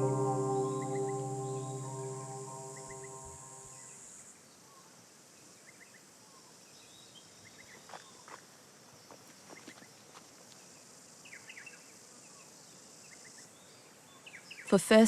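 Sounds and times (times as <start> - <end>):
held musical chord: 0.0 - 3.9.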